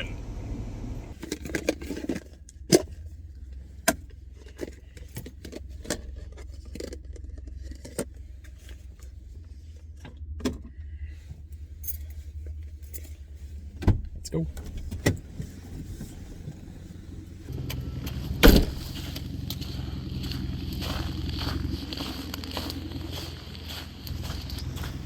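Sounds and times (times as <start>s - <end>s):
low steady hum: 0.0s - 25.0s
keys jangling: 11.8s - 12.2s.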